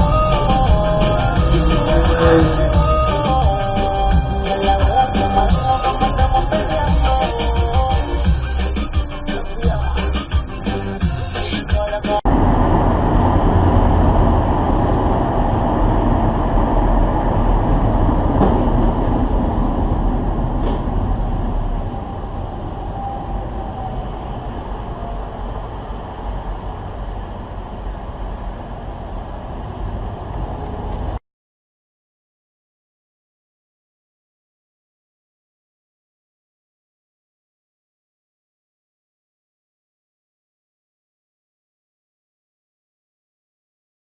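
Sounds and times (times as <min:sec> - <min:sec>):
rumbling vehicle noise: 0:00.0 - 0:07.5, 0:09.9 - 0:31.2.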